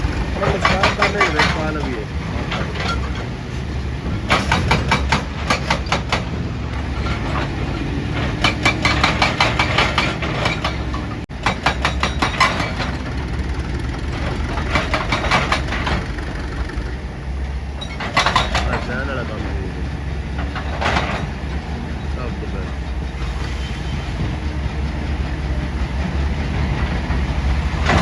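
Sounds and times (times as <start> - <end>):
hydraulic breaker hammering rock: 0.0 - 3.3, 4.0 - 17.0, 17.8 - 19.8, 27.4 - 28.0
excavator engine running: 0.0 - 28.0.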